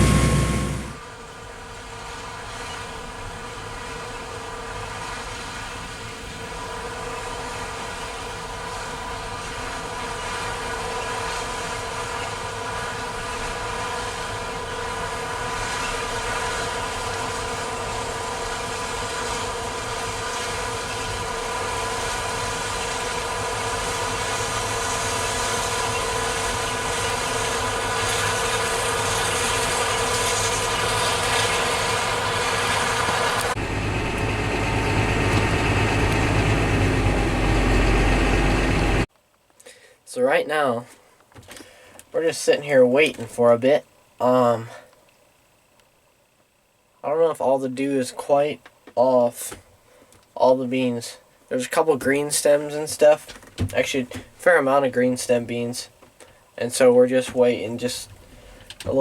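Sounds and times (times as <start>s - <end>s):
combine harvester running: 0.0s - 1.1s, 12.8s - 39.1s.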